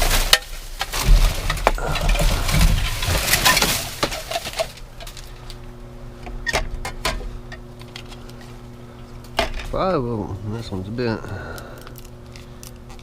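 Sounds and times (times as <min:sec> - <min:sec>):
items rustling and knocking: 0:00.0 - 0:05.6
steady low hum: 0:00.0 - 0:13.0.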